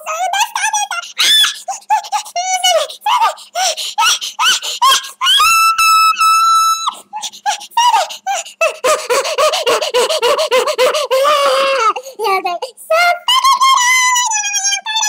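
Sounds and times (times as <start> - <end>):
high-pitched squealing voice: 0.0 - 15.0.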